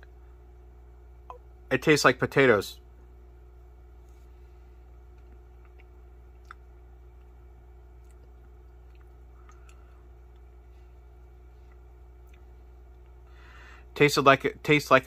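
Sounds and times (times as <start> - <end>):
steady low hum: 0.0 - 15.0
faint chewing and mouth sounds: 4.9 - 13.3.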